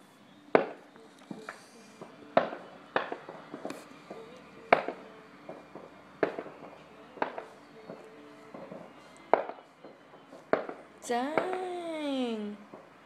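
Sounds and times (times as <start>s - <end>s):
fireworks exploding: 0.3s - 12.1s.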